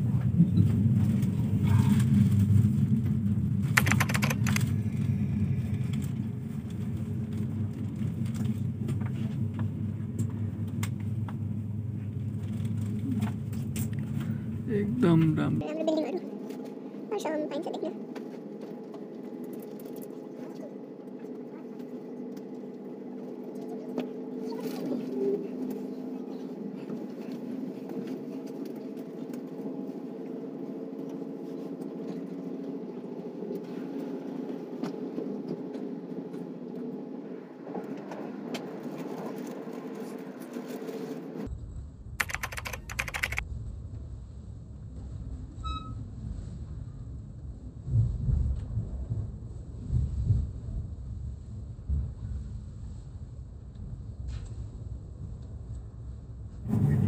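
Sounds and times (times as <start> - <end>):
deep train rumble: 0.0 - 16.1, 43.4 - 57.0
electric train running hum: 0.0 - 41.5
faint clicks: 3.8 - 4.7, 42.2 - 43.4.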